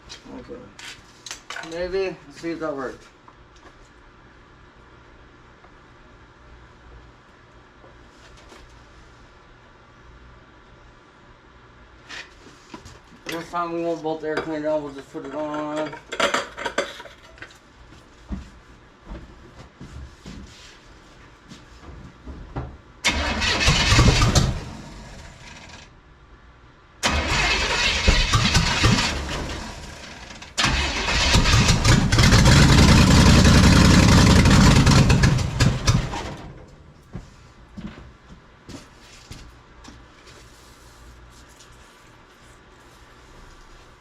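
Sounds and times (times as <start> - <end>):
engine starter cranking: 23.0 - 25.9, 27.0 - 36.6.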